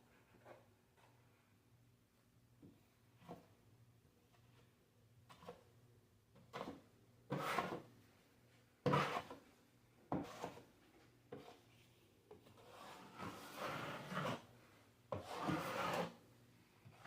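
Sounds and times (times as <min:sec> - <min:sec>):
drywall knife scraping compound: 0:05.2 - 0:05.8, 0:06.4 - 0:08.0, 0:08.8 - 0:09.5, 0:10.1 - 0:17.0.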